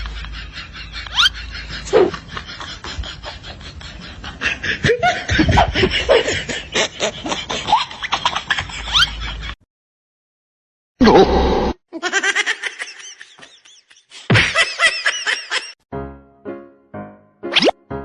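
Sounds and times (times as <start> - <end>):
people laughing: 0.0 - 9.6, 12.0 - 15.8.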